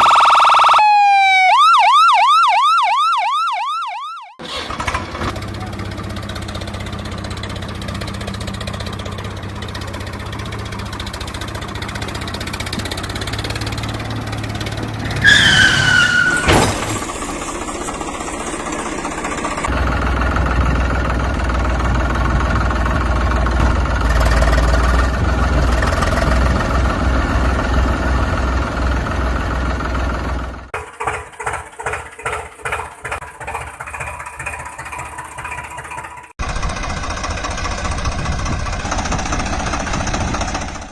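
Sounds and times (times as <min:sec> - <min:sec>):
falling whistle: 0:00.0 - 0:01.4, 0:15.2 - 0:16.6
engine running hum: 0:04.4 - 0:40.9
deep engine rumble: 0:04.7 - 0:30.8, 0:34.4 - 0:40.9
rhythmic engine chugging: 0:05.4 - 0:15.2, 0:17.0 - 0:26.0, 0:30.3 - 0:40.9.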